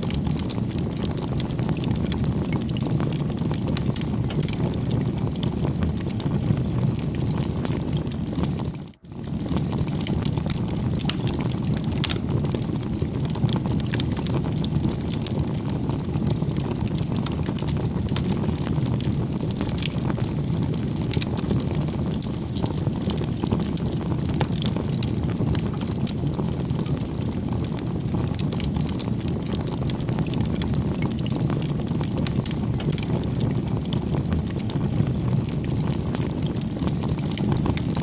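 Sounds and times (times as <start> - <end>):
campfire crackling: 0.0 - 38.0.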